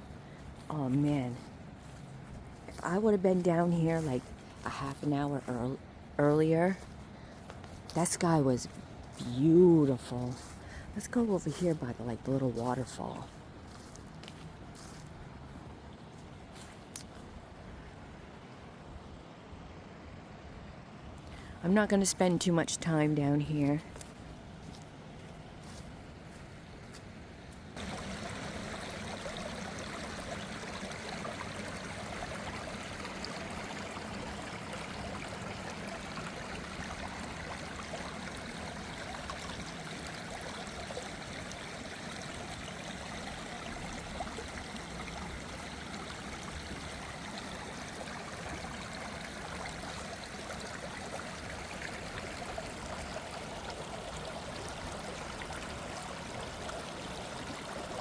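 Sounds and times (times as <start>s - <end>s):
small waterfall rushing: 27.8s - 58.0s.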